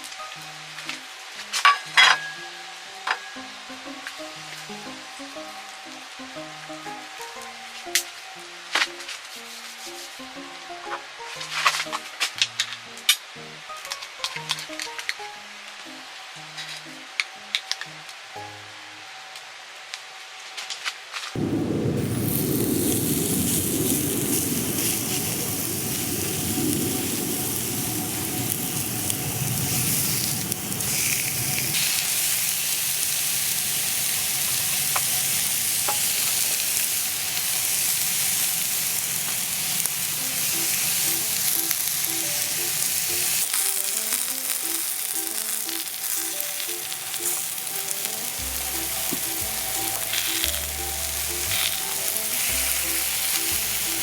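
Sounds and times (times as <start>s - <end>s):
food sizzling in a pan: 0.0s - 15.2s, 21.4s - 54.0s
soft background music: 0.0s - 20.6s, 39.8s - 54.0s
low rumble: 21.4s - 32.0s.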